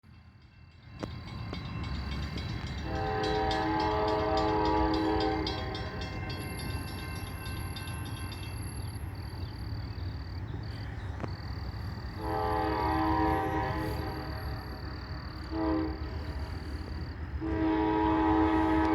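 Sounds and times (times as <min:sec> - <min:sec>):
low rumble of passing train: 0:00.0 - 0:18.9
locomotive air horn blasts: 0:02.8 - 0:06.0, 0:12.2 - 0:14.7, 0:15.4 - 0:16.8, 0:17.4 - 0:18.9.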